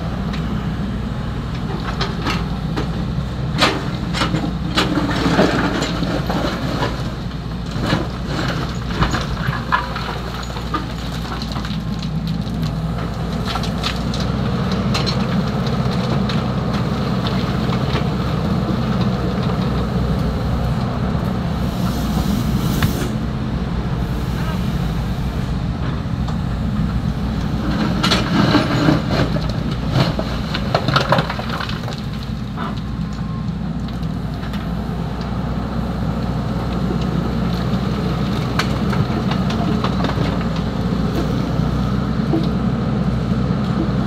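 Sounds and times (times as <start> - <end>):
excavator diesel engine running: 0.0 - 44.0
stones and gravel clattering: 3.6 - 23.2, 25.9 - 33.1.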